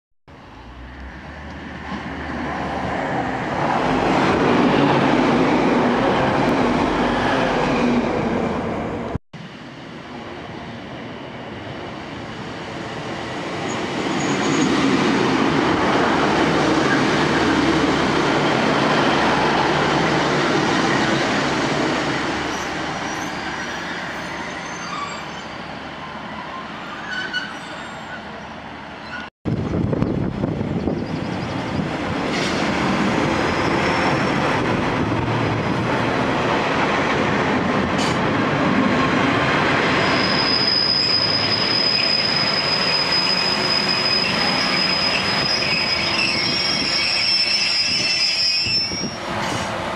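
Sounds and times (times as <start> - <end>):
diesel trains passing: 0.3 - 49.9
high wheel squeaks: 40.0 - 49.6.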